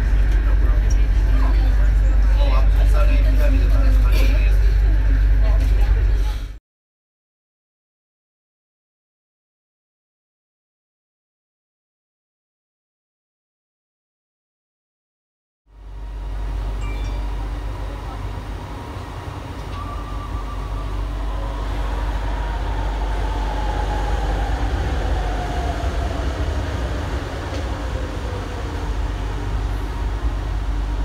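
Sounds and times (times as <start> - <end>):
train rumble: 0.0 - 6.6, 15.7 - 31.0.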